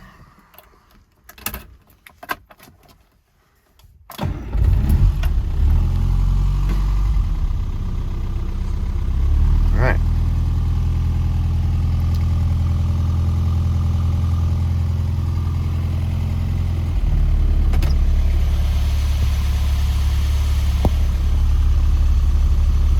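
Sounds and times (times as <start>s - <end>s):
car engine idling: 5.0s - 22.9s.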